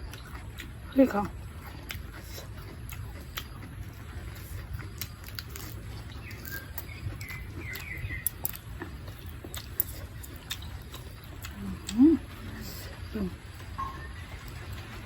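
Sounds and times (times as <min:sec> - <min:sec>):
low steady hum: 0:00.0 - 0:15.0
bird chirping: 0:05.6 - 0:08.6.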